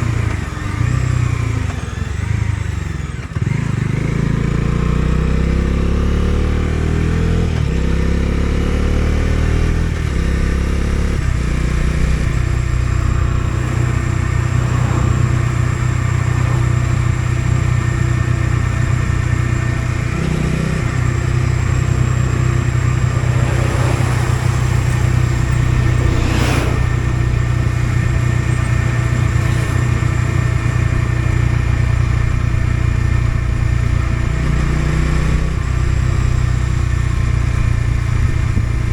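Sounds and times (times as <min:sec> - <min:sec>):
motorcycle engine accelerating: 0:00.0 - 0:38.9
short whoosh: 0:11.9 - 0:18.2, 0:21.5 - 0:30.2.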